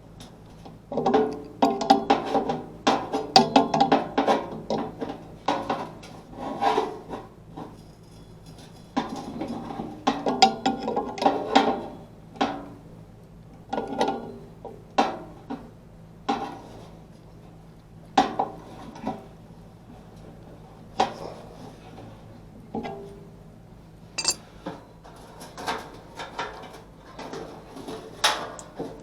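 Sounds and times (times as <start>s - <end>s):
tools and parts knocking: 24.2s - 24.4s.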